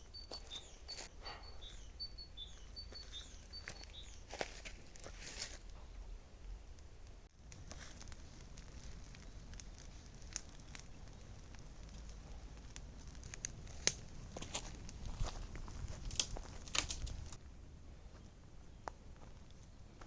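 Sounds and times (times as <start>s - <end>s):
wood fire crackling: 0.0s - 18.2s
sharp snaps and pops: 7.0s - 17.4s.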